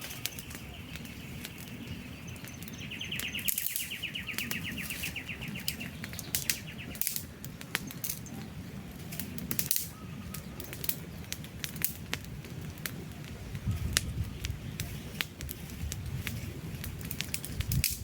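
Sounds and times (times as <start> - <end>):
bird trilling: 0.0 - 7.1
campfire crackling: 0.0 - 18.0
fire pops: 0.0 - 18.0
low rumble of burning: 0.0 - 18.0.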